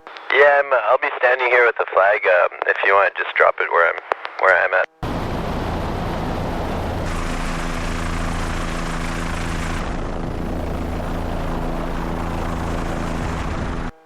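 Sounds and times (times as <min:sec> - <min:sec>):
helicopter rotor and engine drone: 0:04.6 - 0:14.0.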